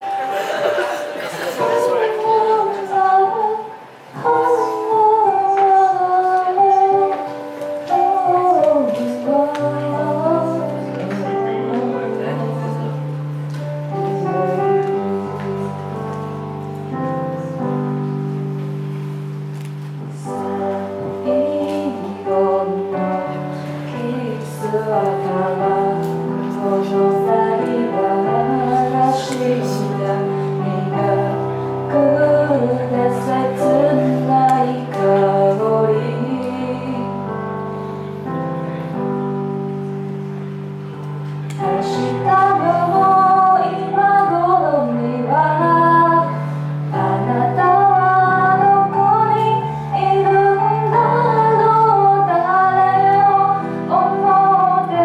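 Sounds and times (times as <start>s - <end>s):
woman singing slow ballad: 1.9s - 13.0s, 20.1s - 37.6s, 41.6s - 55.0s.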